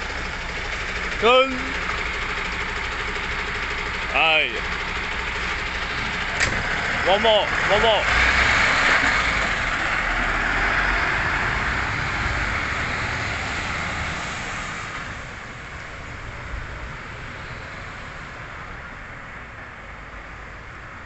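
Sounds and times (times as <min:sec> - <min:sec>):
garbage truck running: 0:00.0 - 0:15.6.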